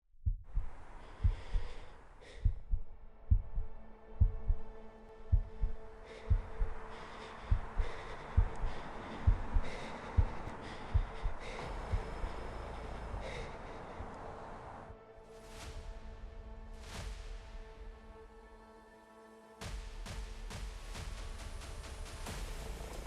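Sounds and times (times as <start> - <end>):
heartbeat thumps: 0.1 - 14.1
humming drone and hiss: 5.3 - 14.9, 21.2 - 23.0.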